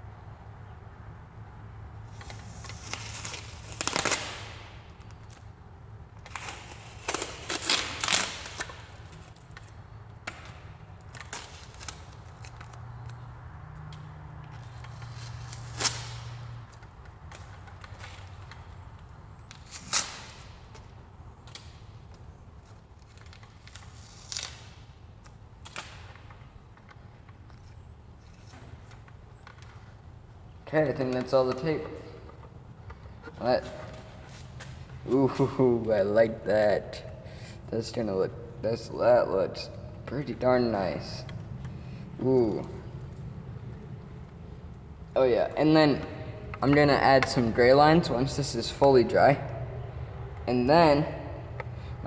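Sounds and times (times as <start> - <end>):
masking tape peeling off: 2.0 - 36.4.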